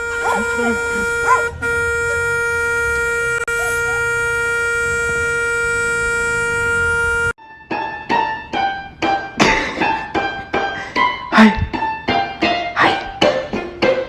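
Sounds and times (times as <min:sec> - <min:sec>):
loud steady horn tone: 0:00.0 - 0:07.4.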